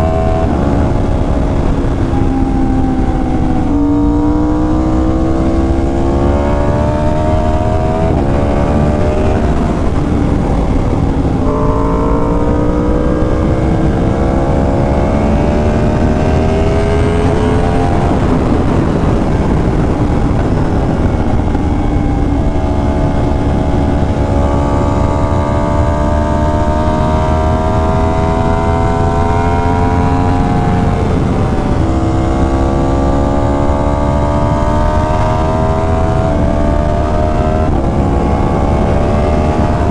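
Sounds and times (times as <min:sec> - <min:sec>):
motorcycle engine revving through gears: 0:00.0 - 0:39.9.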